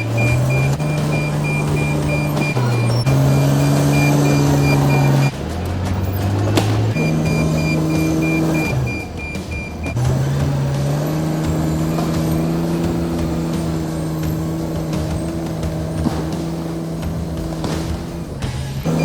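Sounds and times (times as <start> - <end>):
backup alarm beeping: 0.0 - 5.4, 6.8 - 10.3
bulldozer diesel engine: 0.0 - 19.0.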